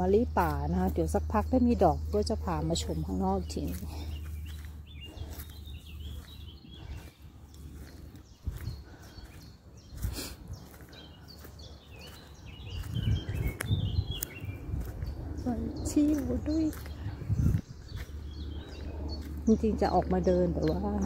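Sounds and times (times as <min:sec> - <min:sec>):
songbirds chirping and singing: 0:00.0 - 0:21.0
low rumble: 0:12.8 - 0:21.0.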